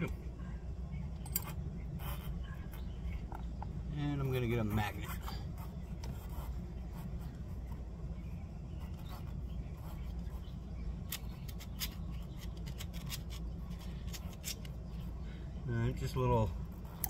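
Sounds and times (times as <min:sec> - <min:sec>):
steady low hum: 0:00.0 - 0:17.0
handling clicks and rubbing: 0:11.0 - 0:14.9.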